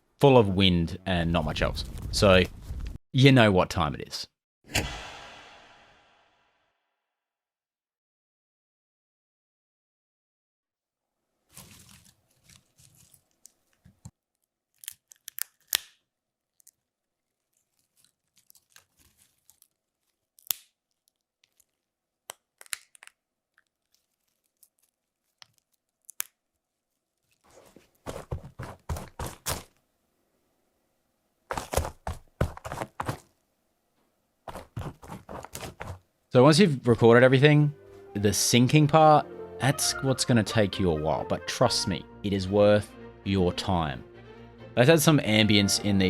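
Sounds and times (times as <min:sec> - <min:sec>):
crackling and crunching: 0:11.5 - 0:29.8, 0:31.5 - 0:33.4, 0:34.5 - 0:36.0
sharp cracks and clicks: 0:20.4 - 0:21.7.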